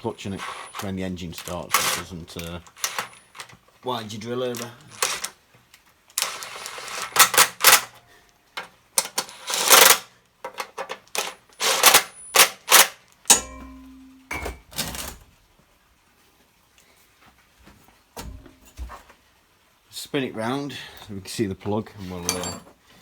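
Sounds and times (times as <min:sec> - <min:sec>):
tools and metal parts clattering: 0:00.2 - 0:03.7, 0:04.4 - 0:05.4, 0:06.2 - 0:08.0, 0:08.6 - 0:15.3, 0:18.2 - 0:19.0, 0:22.2 - 0:22.8.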